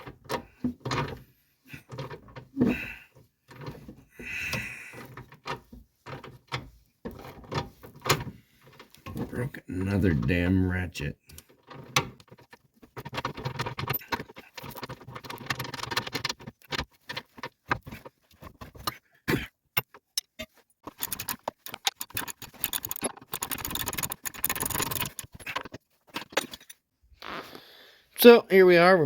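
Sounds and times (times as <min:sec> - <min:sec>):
metal tools clattering: 0:19.8 - 0:26.8
ratchet rapid clicking: 0:20.9 - 0:25.4.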